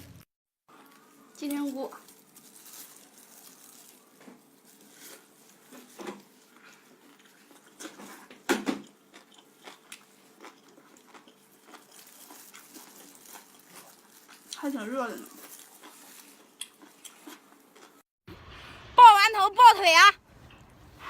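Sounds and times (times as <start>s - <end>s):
person biting and chewing food: 2.1s - 18.0s.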